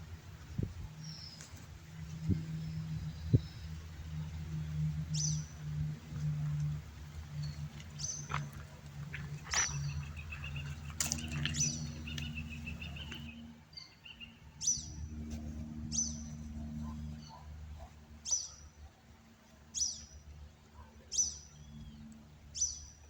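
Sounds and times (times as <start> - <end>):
low hum: 0.0 - 23.0
bird chirping: 9.3 - 15.1.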